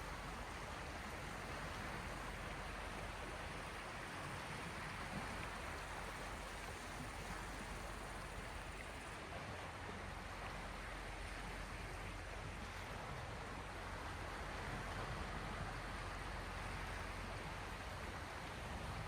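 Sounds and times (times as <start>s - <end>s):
small waves washing on shore: 0.0s - 19.0s.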